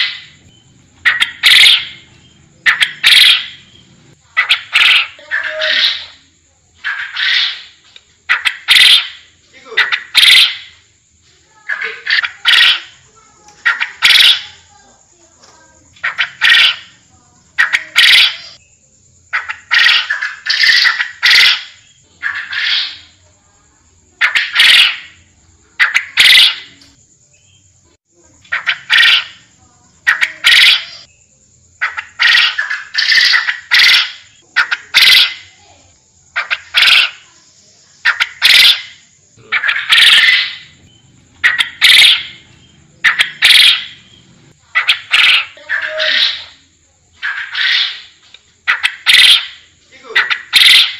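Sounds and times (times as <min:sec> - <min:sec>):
quail calling: 0:00.0 - 0:06.2, 0:06.8 - 0:10.8, 0:11.6 - 0:14.7, 0:15.9 - 0:18.6, 0:19.3 - 0:23.2, 0:24.2 - 0:27.0, 0:28.4 - 0:31.1, 0:31.8 - 0:35.6, 0:36.3 - 0:37.3, 0:38.0 - 0:50.9.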